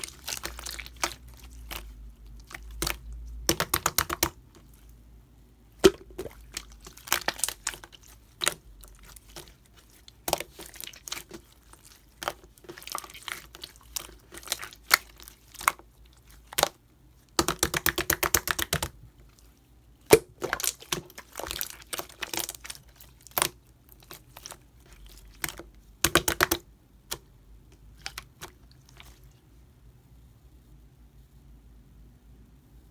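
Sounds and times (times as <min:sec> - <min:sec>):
slime popping and crackling: 0:00.0 - 0:04.8, 0:05.8 - 0:15.8, 0:17.4 - 0:19.0, 0:20.1 - 0:27.2.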